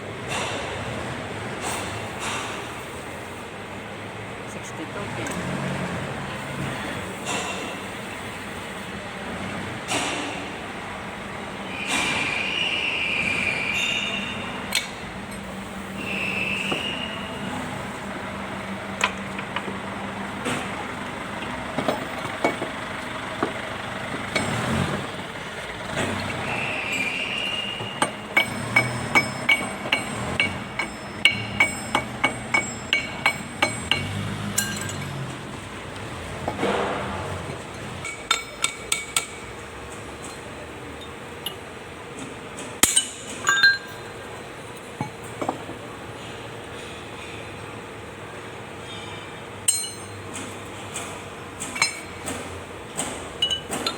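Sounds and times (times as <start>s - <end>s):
hand tools knocking on metal: 21.7s - 22.8s, 27.8s - 37.1s, 38.0s - 39.6s, 42.8s - 44.1s, 49.7s - 50.6s, 51.6s - 53.9s.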